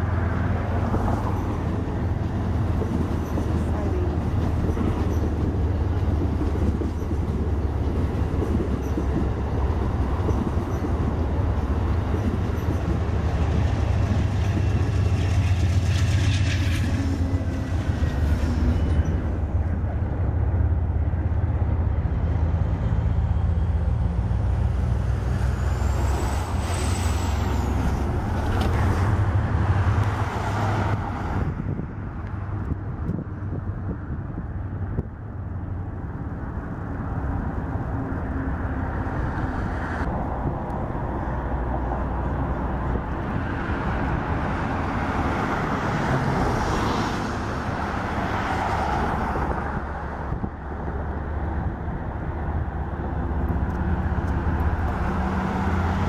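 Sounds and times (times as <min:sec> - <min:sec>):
diesel locomotive engine rumble: 0:00.0 - 0:56.0
passenger train passing: 0:00.0 - 0:56.0
high-pitched squeal: 0:25.0 - 0:28.7.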